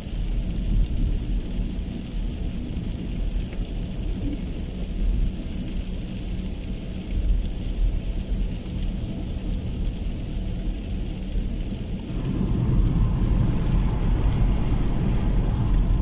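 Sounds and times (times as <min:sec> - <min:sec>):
rain falling: 0:00.0 - 0:16.0
low rumble: 0:11.4 - 0:16.0.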